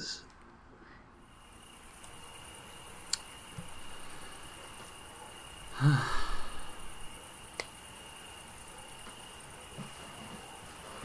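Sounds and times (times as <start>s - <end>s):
steady hiss: 1.1s - 11.0s
man sighing: 5.8s - 6.8s.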